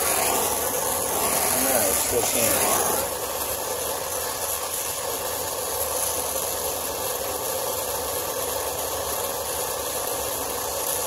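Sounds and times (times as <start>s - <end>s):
torch flame hissing: 0.0s - 11.0s.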